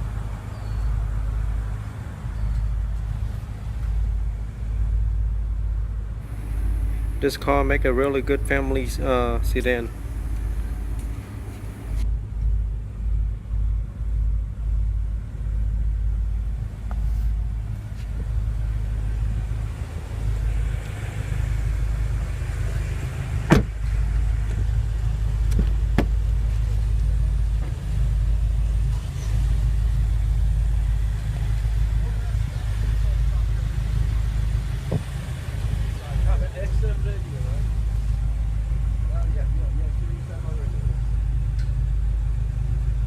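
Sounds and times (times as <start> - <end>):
car engine rumble: 0.0 - 43.0.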